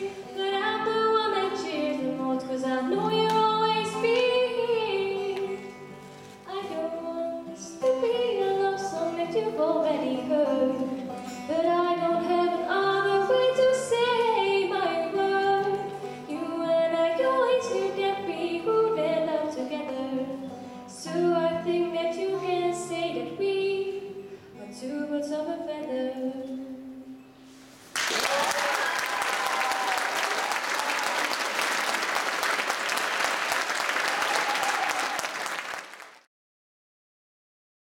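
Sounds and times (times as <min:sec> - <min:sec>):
woman singing a ballad: 0:00.0 - 0:05.8, 0:06.5 - 0:27.2.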